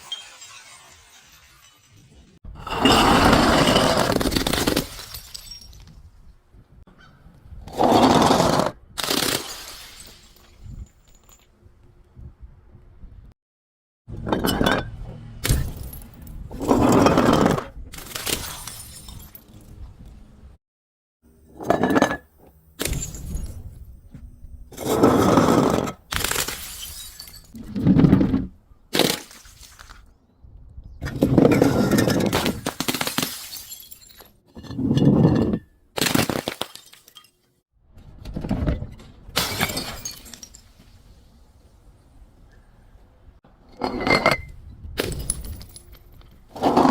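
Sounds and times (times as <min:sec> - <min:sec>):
glass shards clinking: 0:00.0 - 0:05.9, 0:18.0 - 0:19.6, 0:26.2 - 0:27.6, 0:39.4 - 0:40.8
glass bottles shattering: 0:00.0 - 0:06.0, 0:09.0 - 0:11.4, 0:14.3 - 0:19.7, 0:21.5 - 0:23.8, 0:24.7 - 0:27.6, 0:28.9 - 0:30.0, 0:31.2 - 0:37.5, 0:39.4 - 0:41.1, 0:43.8 - 0:46.4.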